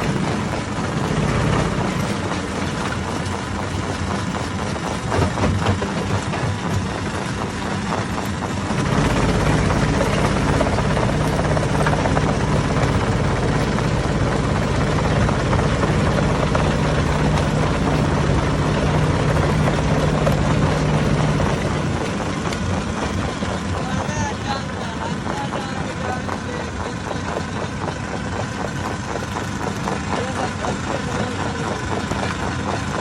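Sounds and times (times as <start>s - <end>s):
stone crusher droning: 0.0s - 33.0s.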